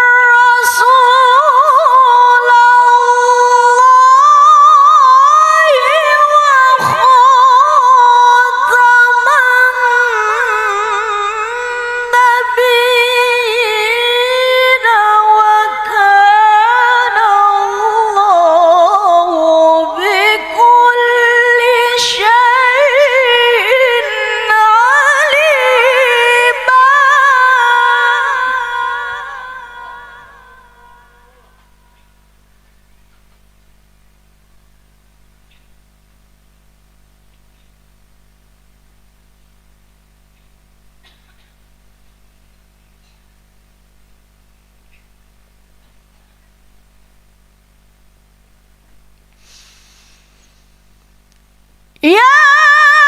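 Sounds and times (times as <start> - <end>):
woman reciting melodically: 0.0 - 31.8, 52.0 - 53.0.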